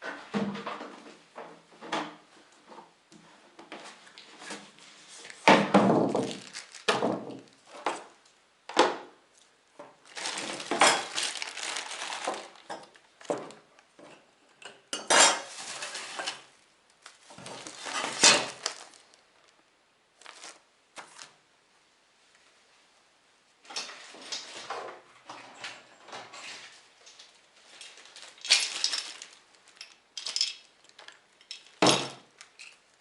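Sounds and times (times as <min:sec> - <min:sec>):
hard parts clattering and knocking: 0:28.2 - 0:32.8.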